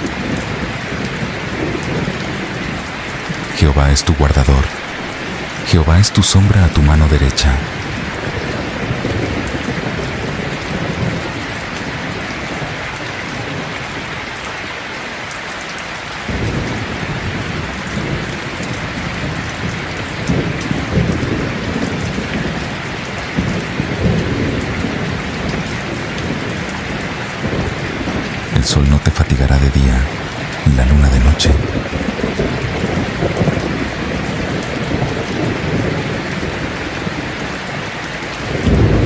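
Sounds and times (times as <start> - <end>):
steady rain: 0.0 - 39.0
rolling thunder: 31.6 - 37.3, 38.4 - 39.0.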